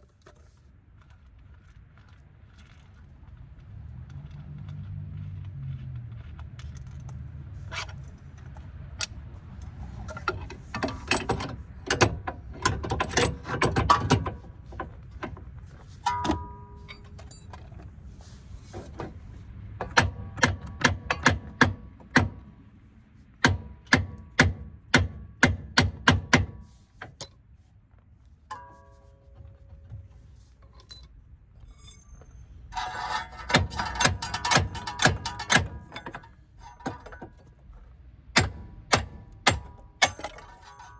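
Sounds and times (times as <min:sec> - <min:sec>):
hand tools striking metal: 0:16.0 - 0:17.6, 0:28.5 - 0:30.1, 0:31.7 - 0:37.4, 0:38.4 - 0:40.9
short metallic rings: 0:16.0 - 0:17.7, 0:28.5 - 0:37.4, 0:39.6 - 0:40.9.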